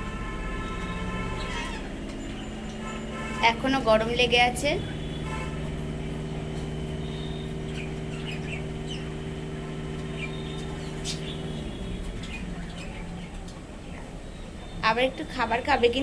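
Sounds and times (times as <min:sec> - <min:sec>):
bird chirping: 0:00.0 - 0:16.0
steady low hum: 0:00.0 - 0:16.0.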